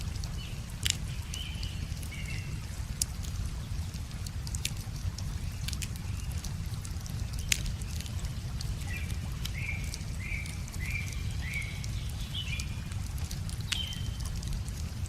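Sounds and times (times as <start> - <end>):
wood fire crackling: 0.0 - 15.0
bird chirping: 8.9 - 12.8, 13.7 - 14.2.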